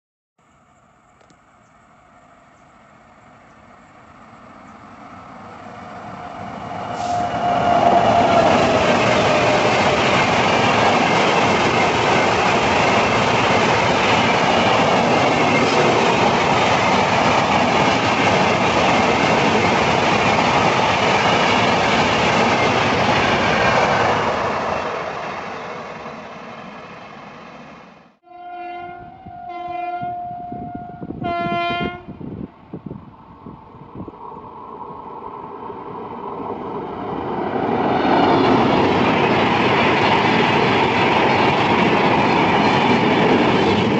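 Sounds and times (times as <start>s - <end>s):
train rumble and wheel clatter: 1.2s - 28.2s, 28.8s - 43.9s
locomotive horn blasts: 28.2s - 32.2s.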